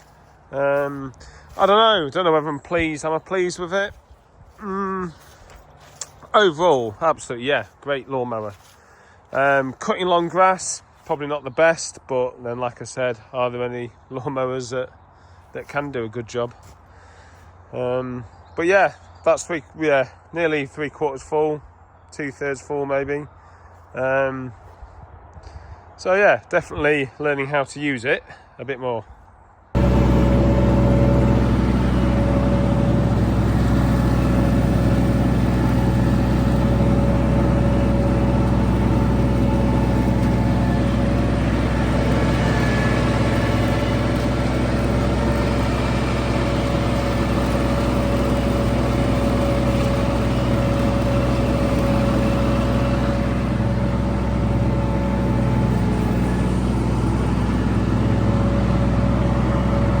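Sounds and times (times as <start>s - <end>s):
mower cutting grass: 0.0s - 6.9s, 8.4s - 10.4s, 29.8s - 60.0s
ride-on mower diesel engine: 0.0s - 11.7s, 15.0s - 19.5s, 29.8s - 60.0s.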